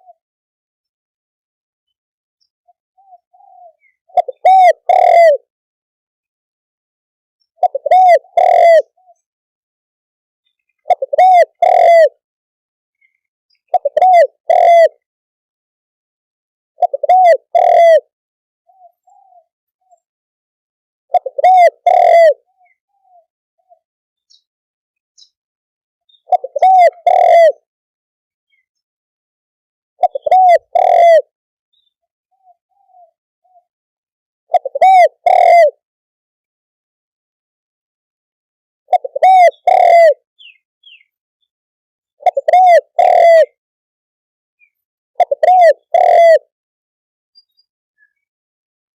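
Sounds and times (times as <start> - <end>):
dove cooing: 3.0 - 5.5, 7.6 - 9.2, 10.9 - 12.2, 13.7 - 15.0, 16.8 - 18.1, 18.7 - 20.0, 21.1 - 23.8, 26.2 - 27.7, 30.0 - 31.3, 32.3 - 33.7, 34.5 - 35.8, 38.9 - 40.5, 42.2 - 43.6, 45.2 - 46.5.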